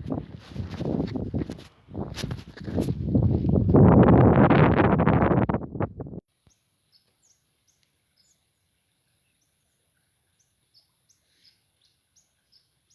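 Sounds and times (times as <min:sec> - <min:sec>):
faint bird chirps: 0:06.4 - 0:12.9.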